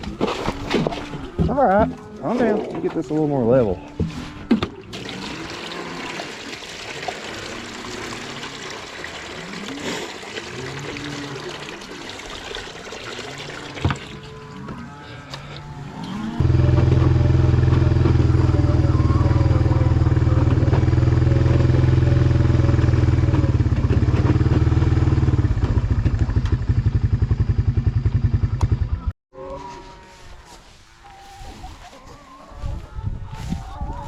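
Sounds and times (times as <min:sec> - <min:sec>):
engine droning: 0:15.1 - 0:29.1.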